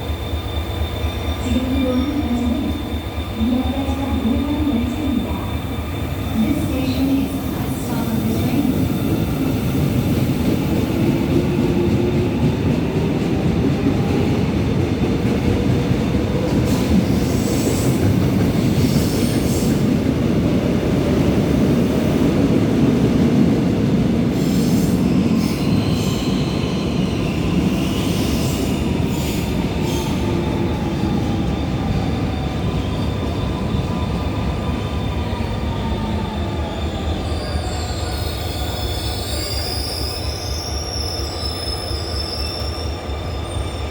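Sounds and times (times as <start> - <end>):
electric train rumble: 0.0 - 43.9
train whine: 0.0 - 43.9.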